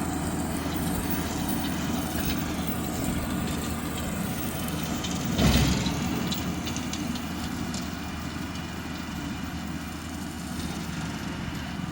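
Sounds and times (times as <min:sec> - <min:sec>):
engine idling: 0:00.0 - 0:11.9.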